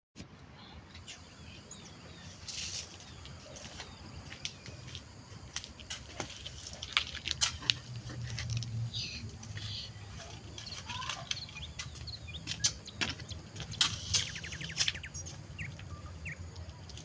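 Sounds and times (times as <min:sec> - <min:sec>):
faint bird chirps: 0:14.0 - 0:16.9.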